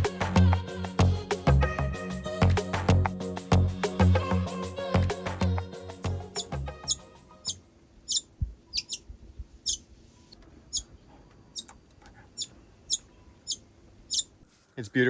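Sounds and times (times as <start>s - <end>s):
bird chirping: 6.4s - 14.4s.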